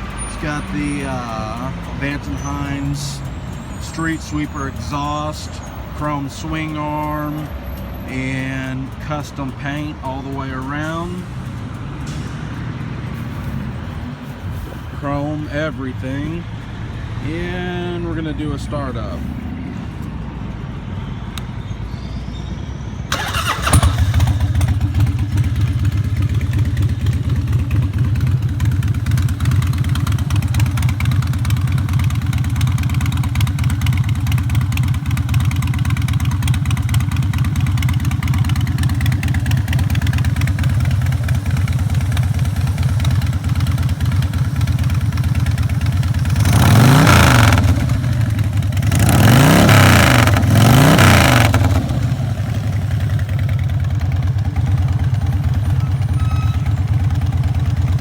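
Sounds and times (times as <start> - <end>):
motorcycle engine idling: 0.0 - 5.4, 23.1 - 58.0
motorcycle throttle revving: 23.1 - 58.0.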